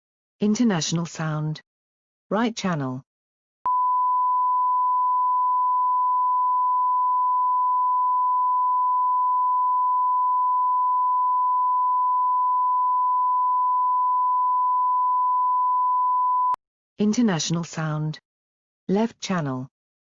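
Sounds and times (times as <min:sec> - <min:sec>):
sine wave test tone: 0:03.7 - 0:16.6.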